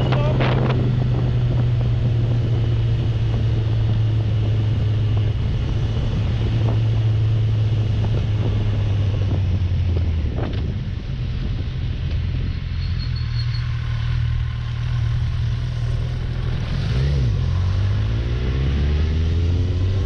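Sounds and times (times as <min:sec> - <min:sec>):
wind noise on microphone: 0:00.0 - 0:13.0
motorcycle engine running: 0:00.0 - 0:18.8.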